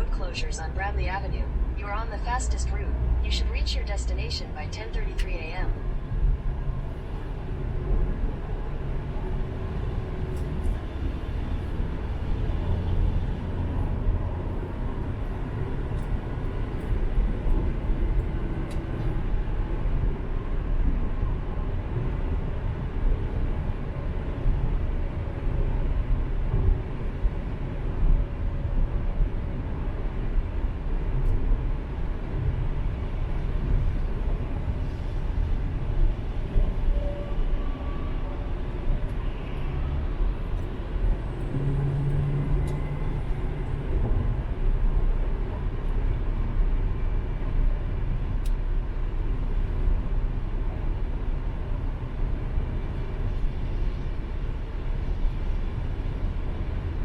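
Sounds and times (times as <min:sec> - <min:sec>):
car engine drone: 0:00.0 - 0:22.4, 0:38.4 - 0:57.0
road and tyre noise: 0:00.0 - 0:57.0.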